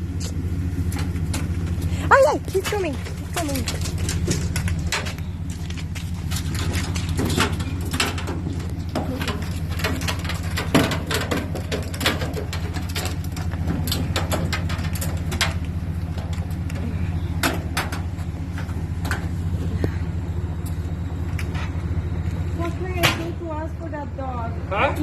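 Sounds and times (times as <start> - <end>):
vehicle engine idling: 0.0 - 25.0
clicks and knocks: 2.5 - 19.4.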